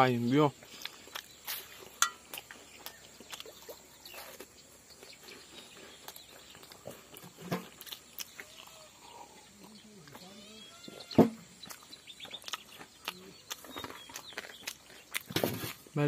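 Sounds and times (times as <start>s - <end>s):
biscuit crunching: 0.7s - 10.2s, 11.6s - 15.9s
mouth clicks: 11.6s - 15.3s.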